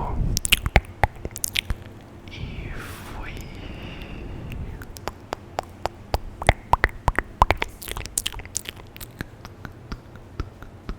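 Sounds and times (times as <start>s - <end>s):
wet mouth clicks and tongue pops: 0.4s - 2.0s, 4.5s - 10.9s
breathy hiss: 2.3s - 5.0s.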